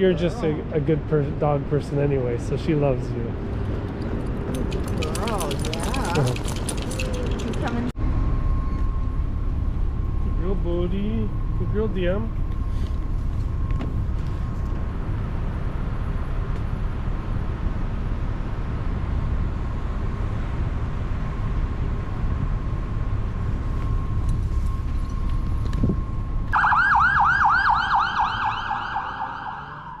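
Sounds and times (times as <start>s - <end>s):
low street rumble: 0.0s - 30.0s
emergency siren yelping: 23.8s - 30.0s.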